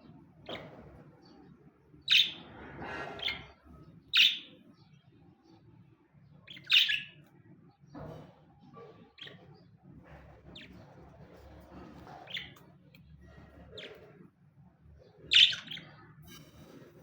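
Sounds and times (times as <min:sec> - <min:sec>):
budgerigars chirping: 0:00.4 - 0:04.6, 0:06.4 - 0:07.3, 0:09.1 - 0:14.3, 0:15.1 - 0:16.0
budgerigars chattering: 0:02.1 - 0:04.5, 0:06.5 - 0:07.2, 0:10.2 - 0:14.2, 0:15.2 - 0:16.0.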